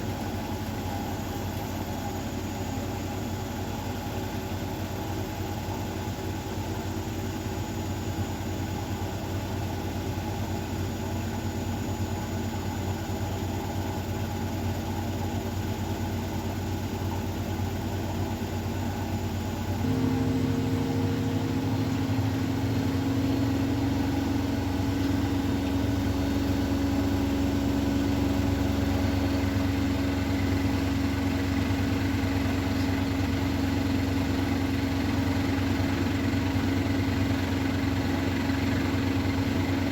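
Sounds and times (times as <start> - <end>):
washing machine motor humming: 17.8 - 39.9.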